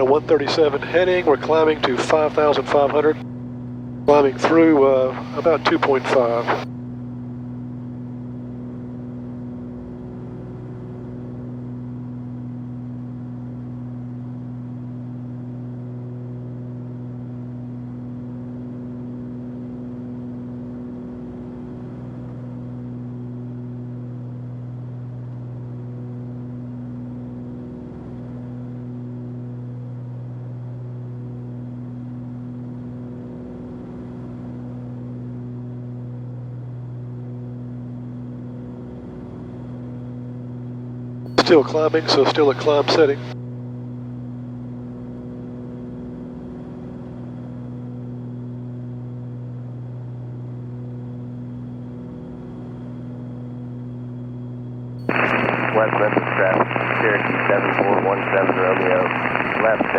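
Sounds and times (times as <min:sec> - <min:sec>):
aircraft engines humming: 0:00.0 - 0:03.2, 0:04.1 - 0:06.6, 0:41.4 - 0:43.4, 0:55.1 - 0:59.9.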